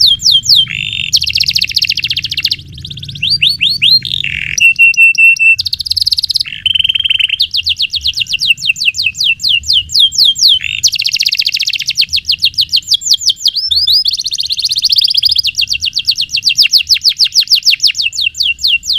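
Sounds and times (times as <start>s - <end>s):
canary singing rolling trills: 0.0s - 18.9s.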